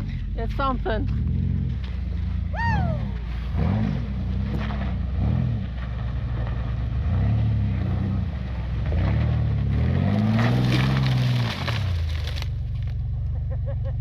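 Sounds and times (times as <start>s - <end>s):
off-road vehicle engine revving: 0.0s - 14.0s.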